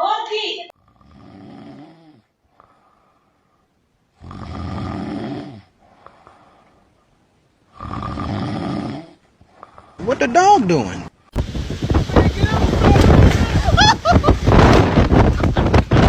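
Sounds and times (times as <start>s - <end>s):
dog snoring: 0.8s - 2.8s, 4.2s - 5.8s, 7.7s - 9.9s.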